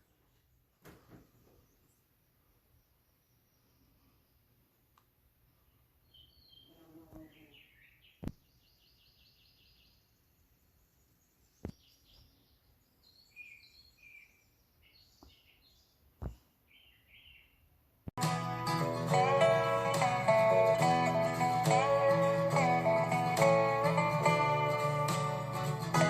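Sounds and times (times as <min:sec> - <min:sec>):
small birds chirping: 0:00.0 - 0:17.8
acoustic guitar music: 0:18.2 - 0:26.0.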